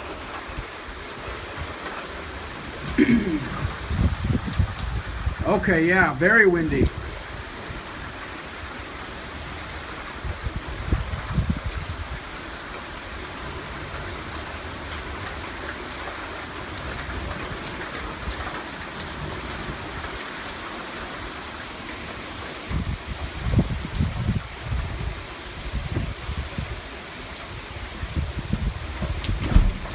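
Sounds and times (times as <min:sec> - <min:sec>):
heavy rain pouring: 0:00.0 - 0:29.9
wind buffeting microphone: 0:02.8 - 0:05.6, 0:10.2 - 0:12.2, 0:22.7 - 0:26.8, 0:27.6 - 0:29.9.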